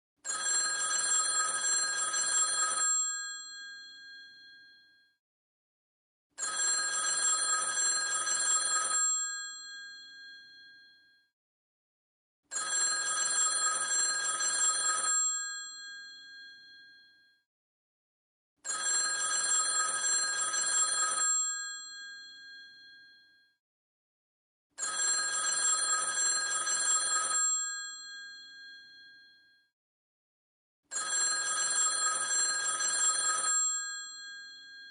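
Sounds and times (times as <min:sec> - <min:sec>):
old telephone bell ringing: 0:00.3 - 0:04.6, 0:06.4 - 0:10.6, 0:12.5 - 0:16.8, 0:18.7 - 0:23.0, 0:24.8 - 0:29.0, 0:30.9 - 0:34.9.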